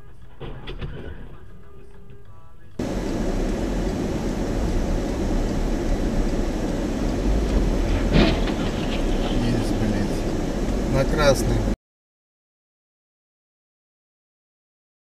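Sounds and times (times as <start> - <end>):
moving vehicle noise: 2.8 - 11.8.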